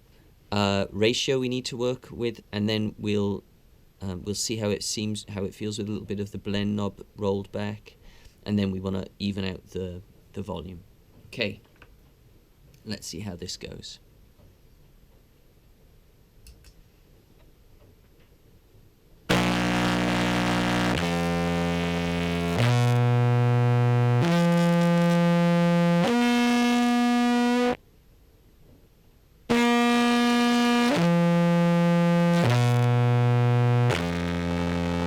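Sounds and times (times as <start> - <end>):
distorted low clarinet notes: 19.3 - 27.8, 29.5 - 35.0.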